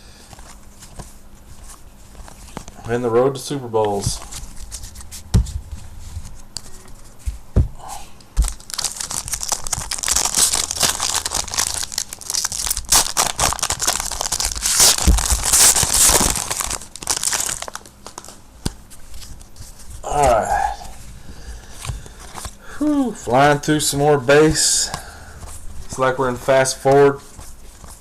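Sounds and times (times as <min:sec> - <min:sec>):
wrapper tearing and crinkling: 0:08.4 - 0:18.4.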